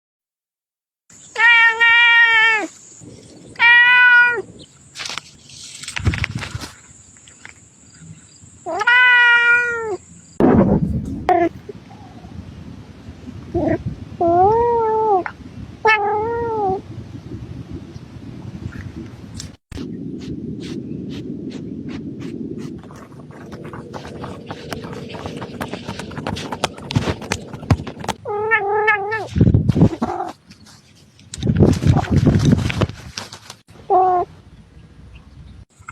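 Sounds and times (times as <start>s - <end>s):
cat meowing: 1.4s - 2.7s, 3.6s - 4.4s, 8.7s - 10.0s, 14.2s - 16.8s, 28.2s - 29.3s
loud low rumbling noise: 10.4s - 28.2s
soft rustle: 19.5s - 28.2s, 29.2s - 33.7s.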